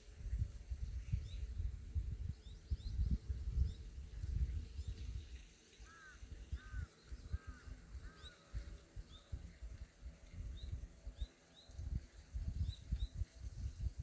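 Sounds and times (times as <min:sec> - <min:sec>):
birds calling: 0:05.8 - 0:09.3.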